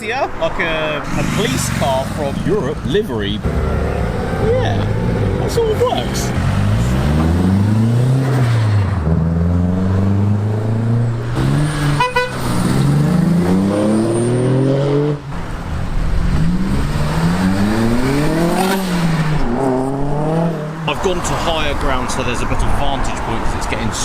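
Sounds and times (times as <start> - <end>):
car engines accelerating: 0.0 - 24.0
short car horn toot: 12.0 - 12.4.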